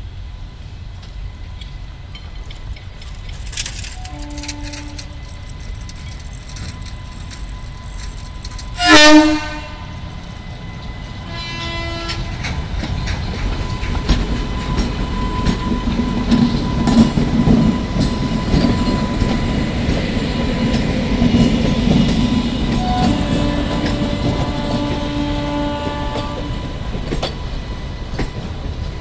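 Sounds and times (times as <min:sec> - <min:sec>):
passing train rumble: 0:00.0 - 0:29.0
train wheels clattering: 0:01.0 - 0:29.0
train horn blast: 0:04.0 - 0:05.3, 0:08.8 - 0:10.0, 0:11.2 - 0:12.5, 0:22.6 - 0:26.7.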